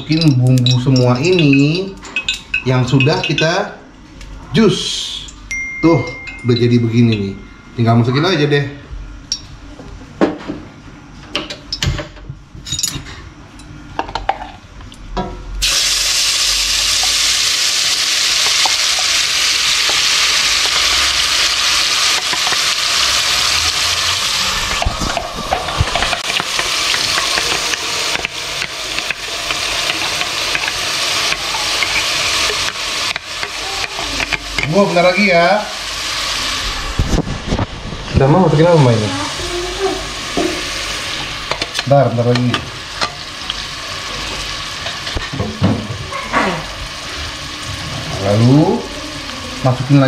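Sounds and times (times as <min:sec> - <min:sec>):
knocks and clinks: 0:05.5 - 0:07.8
paste sizzling in hot ghee: 0:15.6 - 0:24.8, 0:25.8 - 0:35.1.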